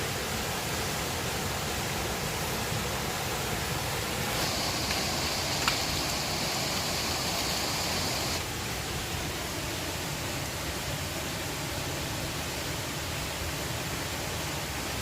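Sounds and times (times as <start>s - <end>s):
high hiss: 0.0s - 9.6s
river water rushing: 0.0s - 15.0s
sharp click: 4.5s - 6.2s.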